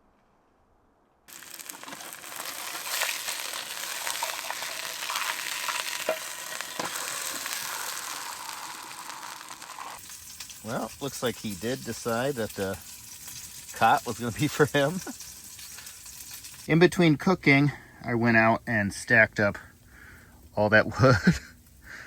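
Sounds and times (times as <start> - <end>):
fat popping: 1.3 - 10.5
burger patty sizzling in pan: 1.3 - 16.7.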